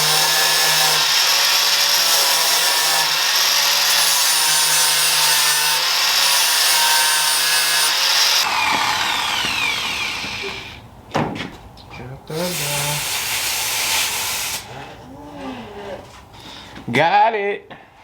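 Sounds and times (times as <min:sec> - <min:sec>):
power tool grinding metal: 0:00.0 - 0:10.8, 0:12.3 - 0:14.7
power tool winding down: 0:08.2 - 0:10.8.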